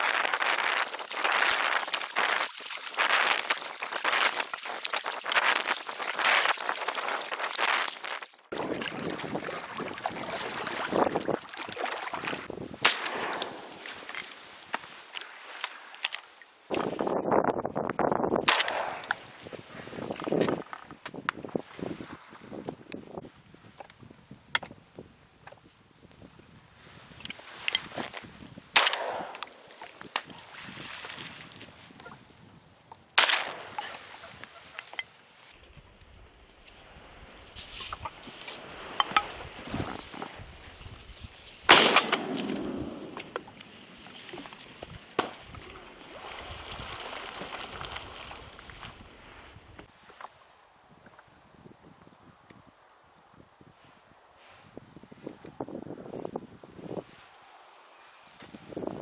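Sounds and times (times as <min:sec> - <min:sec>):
wind noise on microphone: 0:00.0 - 0:43.5, 0:44.3 - 0:50.2, 0:50.9 - 0:57.4, 0:58.2 - 0:59.0
loud shotgun shot: 0:12.8 - 0:14.3, 0:18.5 - 0:19.4, 0:28.8 - 0:29.7, 0:33.2 - 0:34.0, 0:41.7 - 0:43.0.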